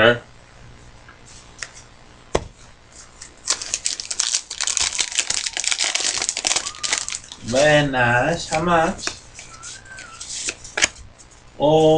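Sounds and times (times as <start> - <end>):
wrapper crinkling and tearing: 3.4 - 7.7.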